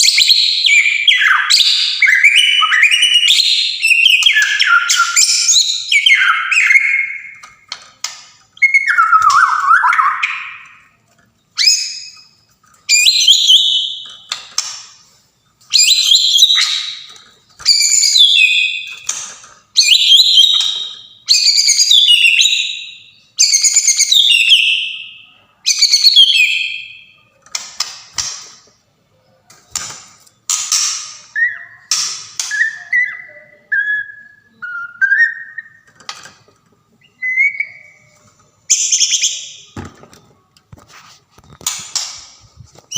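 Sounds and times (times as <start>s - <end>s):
bird singing whistled phrases: 8.6s - 10.8s, 15.7s - 16.9s, 19.8s - 27.2s, 31.4s - 35.9s, 37.0s - 38.1s.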